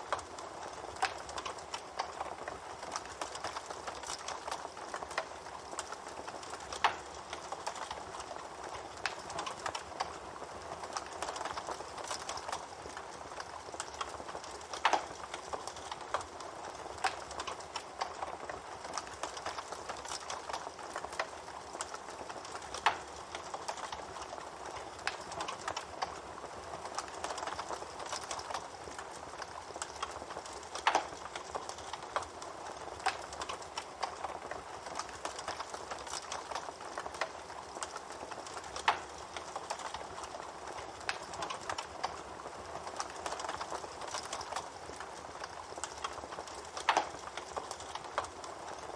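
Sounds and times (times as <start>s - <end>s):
campfire crackling: 0.0s - 48.9s.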